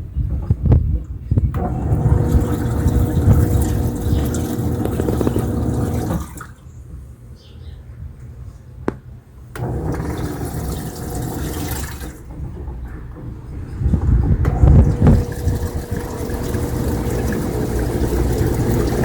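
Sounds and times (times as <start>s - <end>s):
washing machine motor hum: 1.5s - 6.6s, 9.5s - 19.0s
water rushing and sloshing: 1.7s - 6.6s, 9.6s - 13.8s, 14.5s - 19.0s.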